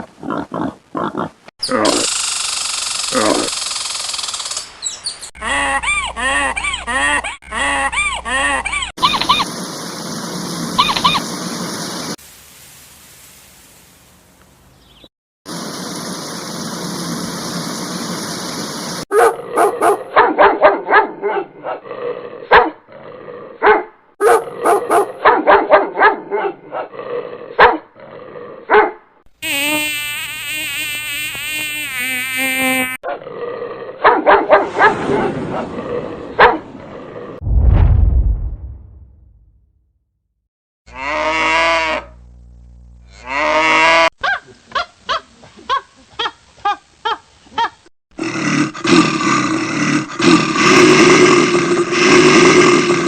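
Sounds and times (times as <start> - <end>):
dog barking: 19.1 - 21.8, 22.5 - 22.8, 23.6 - 26.9, 27.6 - 27.8, 28.7 - 29.0, 34.0 - 35.2, 36.4 - 36.6, 44.2 - 45.8.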